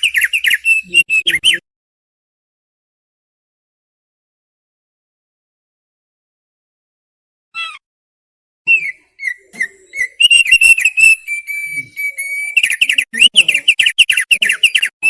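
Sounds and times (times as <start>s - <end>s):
bird singing whistled notes: 0.0s - 1.6s, 8.7s - 15.0s.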